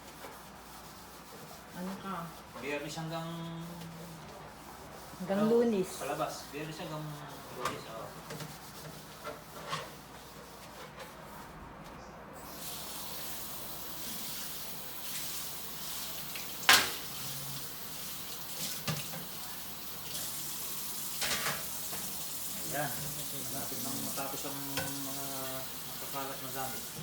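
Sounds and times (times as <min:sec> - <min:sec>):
tap water running into sink: 0:12.6 - 0:27.0.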